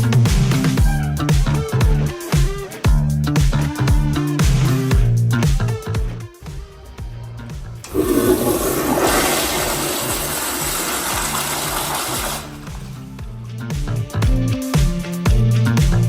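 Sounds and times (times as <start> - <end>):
toilet flushing: 7.8 - 13.2.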